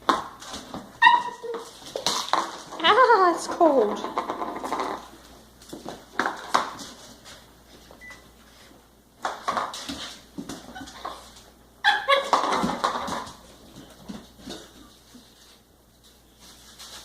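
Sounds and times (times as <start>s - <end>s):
puppy whining: 1.0s - 1.8s, 10.6s - 12.4s.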